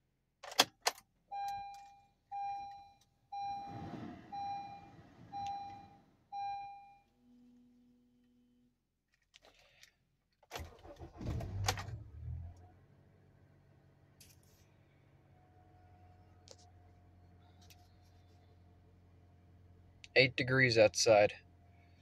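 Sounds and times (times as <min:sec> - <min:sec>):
car engine cranking and starting: 0:02.4 - 0:06.6, 0:10.5 - 0:14.3
short low beep: 0:02.4 - 0:07.0.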